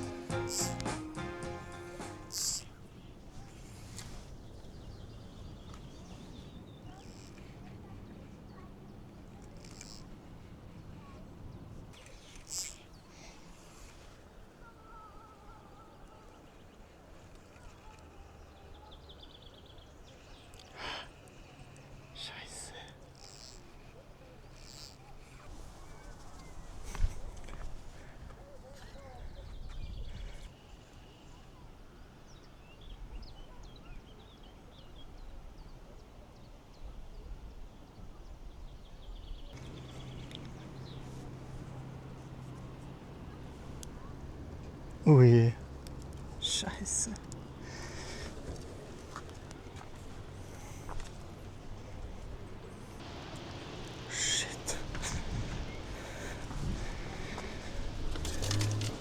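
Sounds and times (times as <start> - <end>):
bird whistling: 0.0 - 2.6
bird ticking trill: 0.0 - 2.8, 39.6 - 44.0
scattered ticks: 0.0 - 2.8, 6.9 - 7.8, 9.2 - 10.5, 11.9 - 14.0, 20.5 - 25.5, 39.6 - 45.0, 45.6 - 59.0
wind rumble on microphone: 54.8 - 59.0.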